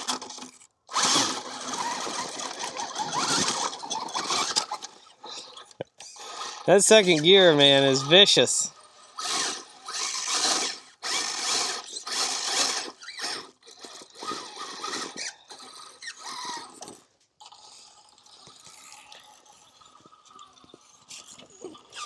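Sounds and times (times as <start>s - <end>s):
electric motor whirring: 0.0s - 5.1s, 6.0s - 16.8s.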